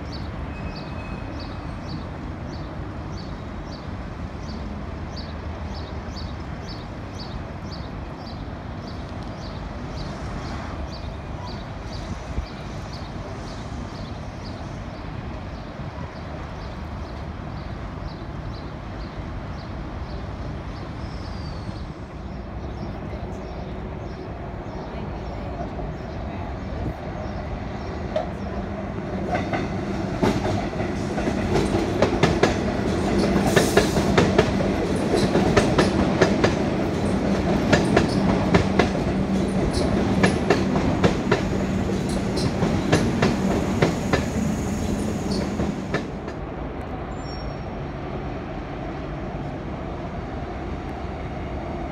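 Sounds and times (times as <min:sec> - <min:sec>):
train wheels clacking over rail joints: 0:29.3 - 0:44.4.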